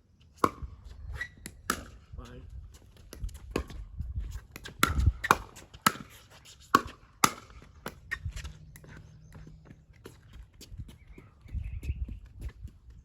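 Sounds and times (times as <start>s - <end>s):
paddles hitting plastic ball: 4.5s - 8.1s.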